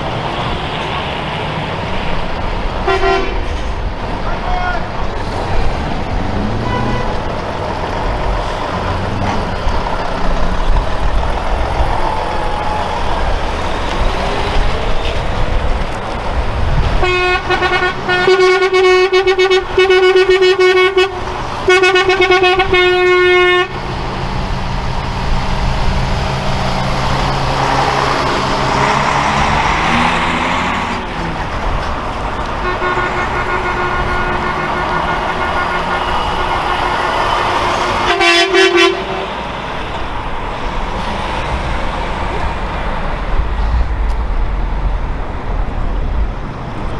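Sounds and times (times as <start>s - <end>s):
trucks driving past: 0.0s - 46.9s
truck air horn blasts: 2.8s - 3.8s, 6.4s - 7.4s, 17.0s - 24.0s, 32.4s - 39.8s
faint horn: 6.4s - 7.3s, 32.6s - 39.4s.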